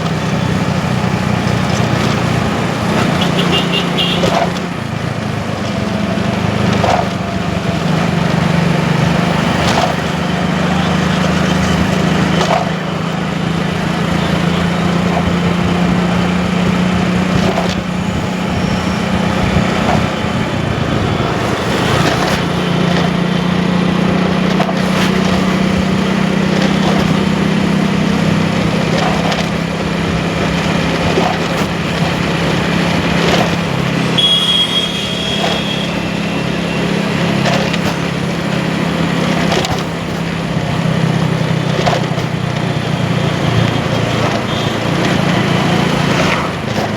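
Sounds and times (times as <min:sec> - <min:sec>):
motorcycle engine hum: 0:00.0 - 0:46.9
road and wind noise: 0:00.0 - 0:46.9
short high beep: 0:34.2 - 0:35.9.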